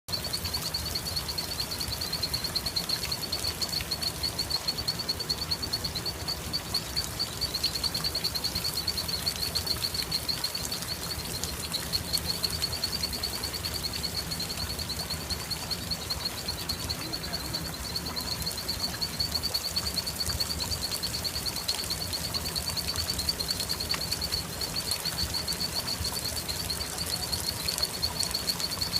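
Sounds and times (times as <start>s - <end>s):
background hiss: 0.1s - 28.9s.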